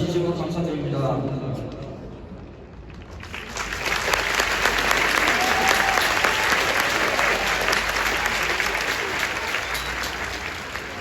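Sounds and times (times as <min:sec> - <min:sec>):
stadium crowd applauding: 0:02.9 - 0:11.0.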